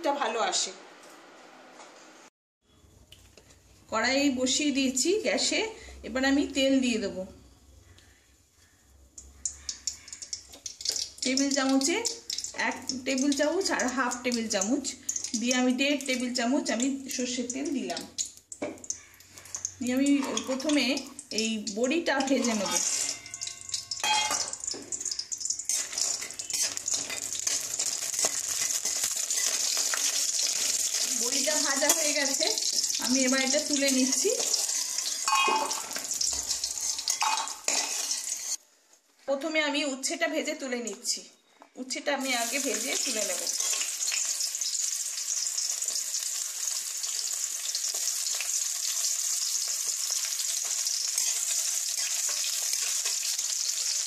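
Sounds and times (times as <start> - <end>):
dumplings sizzling in oil: 8.6 - 38.6, 42.2 - 54.0
spatula scraping a pan: 22.2 - 24.2, 25.7 - 31.1, 34.1 - 38.6, 43.5 - 44.0, 50.6 - 54.0.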